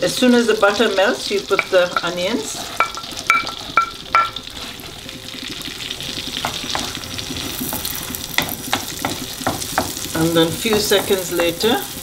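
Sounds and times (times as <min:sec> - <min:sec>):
shallots sizzling in butter: 0:00.0 - 0:12.0
wooden spoon stirring: 0:01.0 - 0:05.2, 0:06.4 - 0:11.8.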